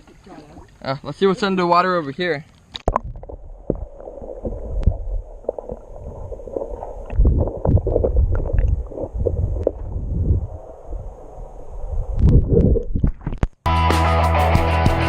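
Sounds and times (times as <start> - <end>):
muffled underwater rumbling and gurgling: 2.9 - 13.5.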